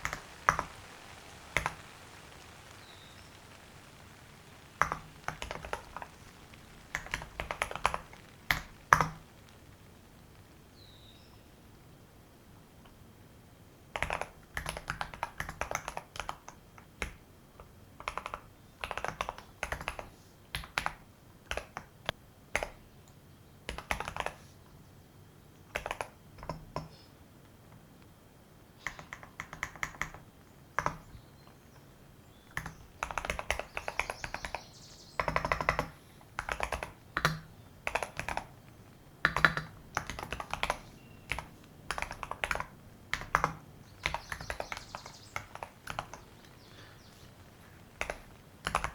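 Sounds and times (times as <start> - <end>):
typing on computer keyboard: 4.8 - 9.5, 14.0 - 22.8, 23.7 - 24.4, 25.7 - 26.9, 28.8 - 31.1, 32.5 - 46.3, 48.0 - 48.9.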